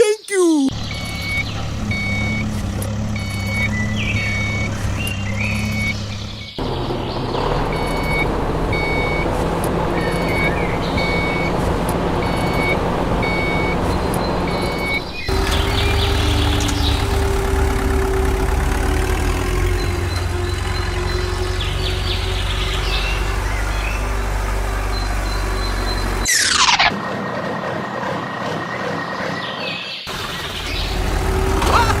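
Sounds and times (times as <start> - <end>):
engine running: 0.7 - 29.4, 30.1 - 32.0
lower engine running: 0.7 - 29.4, 30.1 - 32.0
reversing alarm beeping: 3.1 - 4.7.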